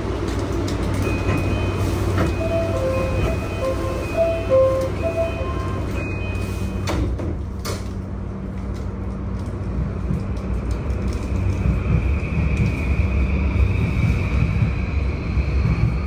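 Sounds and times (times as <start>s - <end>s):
train low rumble: 0.0s - 16.0s
held tone: 1.1s - 6.9s.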